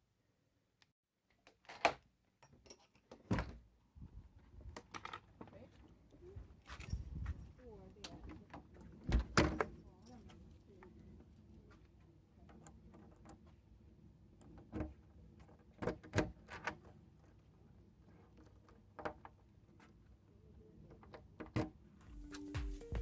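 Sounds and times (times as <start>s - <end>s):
music: 22.0s - 23.0s.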